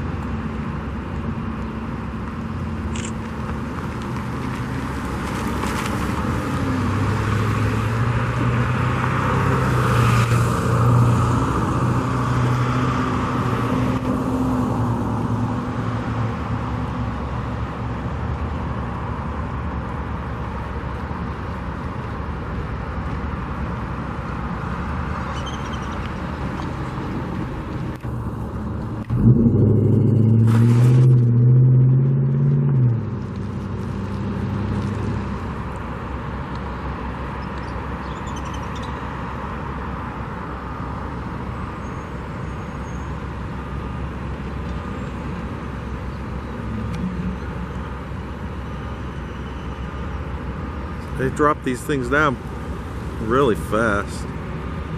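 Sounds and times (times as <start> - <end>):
traffic hum: 0.0 - 54.9
loud engine: 29.0 - 35.6, 45.1 - 49.5.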